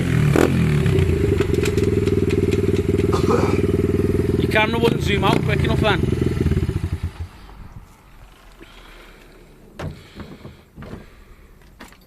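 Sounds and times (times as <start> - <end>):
pit bike engine running: 0.0 - 7.8.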